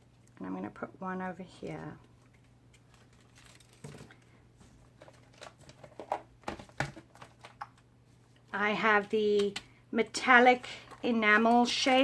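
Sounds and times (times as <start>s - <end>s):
paper rustling: 2.2s - 7.6s.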